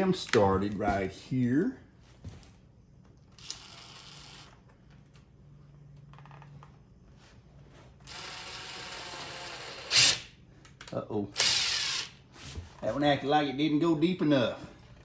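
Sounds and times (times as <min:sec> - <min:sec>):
power drill driving screws: 0:03.4 - 0:04.6, 0:08.1 - 0:10.2, 0:11.4 - 0:12.1.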